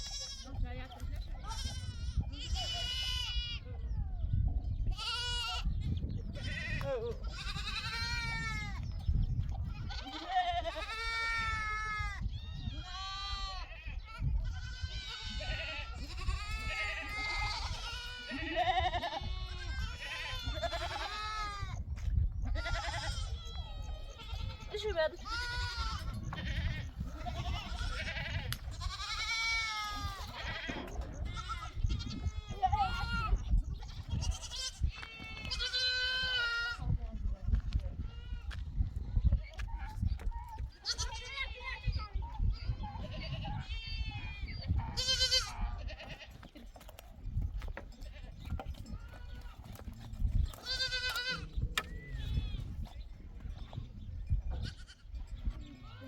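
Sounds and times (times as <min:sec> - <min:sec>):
sheep bleating: 0:06.4 - 0:08.8, 0:09.8 - 0:12.1, 0:12.8 - 0:21.8, 0:22.5 - 0:33.4, 0:34.1 - 0:36.8, 0:43.1 - 0:46.4, 0:50.6 - 0:51.6.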